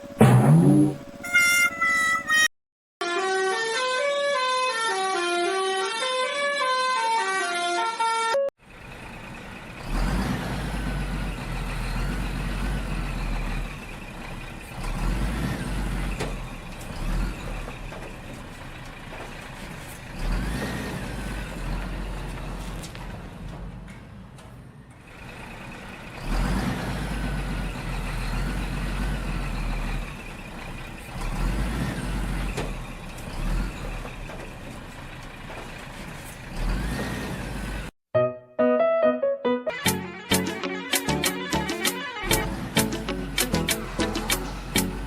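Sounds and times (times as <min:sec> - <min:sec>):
truck engine rumble: 0:00.0 - 0:02.5, 0:08.6 - 0:38.0, 0:39.9 - 0:45.0
short electronic tune: 0:38.2 - 0:45.0.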